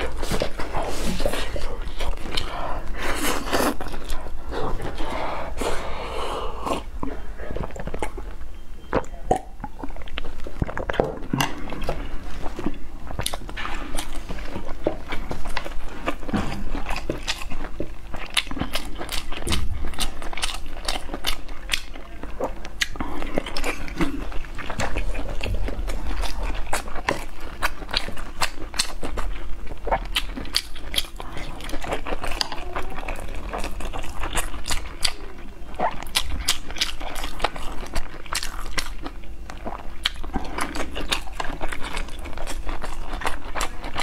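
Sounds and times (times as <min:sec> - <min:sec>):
person chewing: 0:00.0 - 0:44.0
wet mouth clicks: 0:08.9 - 0:10.2.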